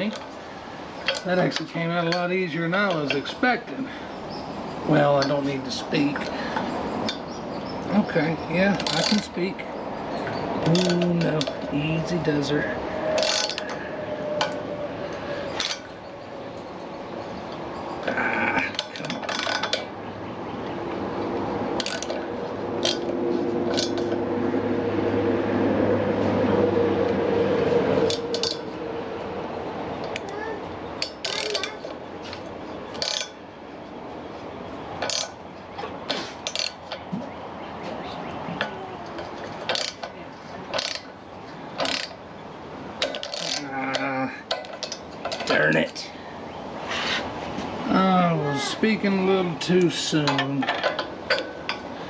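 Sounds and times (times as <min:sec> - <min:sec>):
steady mechanical hum: 0:00.0 - 0:52.0
hand tools clicking on engine: 0:08.7 - 0:09.4, 0:10.2 - 0:12.6, 0:13.2 - 0:13.8, 0:15.6 - 0:15.9, 0:17.5 - 0:19.9, 0:21.8 - 0:24.2, 0:28.0 - 0:28.6, 0:31.0 - 0:33.4, 0:35.0 - 0:37.2, 0:38.6 - 0:41.1, 0:41.7 - 0:42.2, 0:43.0 - 0:45.8, 0:49.7 - 0:51.9
low hum or groan: 0:10.2 - 0:31.9
ratchet wrench clicking: 0:40.8 - 0:41.1, 0:41.8 - 0:42.2.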